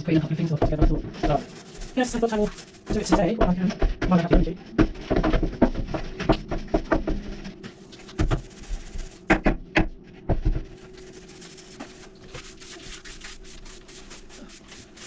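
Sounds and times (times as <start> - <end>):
objects knocking and clattering: 2.4 - 8.5, 9.2 - 10.8.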